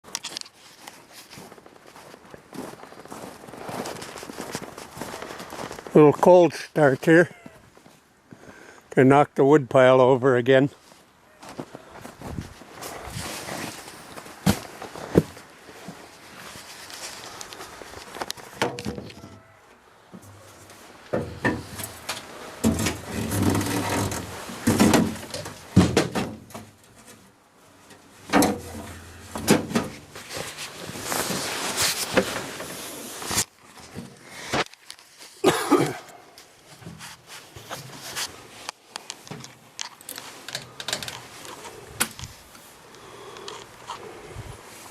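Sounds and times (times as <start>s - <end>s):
things being handled: 20.2s - 27.3s, 27.9s - 35.4s, 36.4s - 44.1s.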